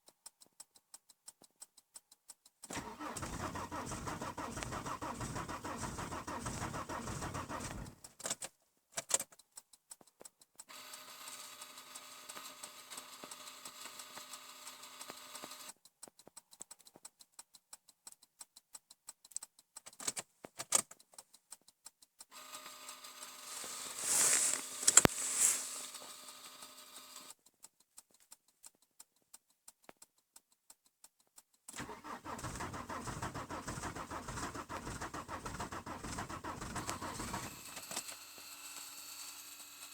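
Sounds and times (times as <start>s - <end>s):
sharp clicks: 0.0s - 11.0s, 15.0s - 22.3s, 23.4s - 26.2s, 27.0s - 38.1s
diesel engine running: 2.8s - 8.0s, 31.8s - 37.8s.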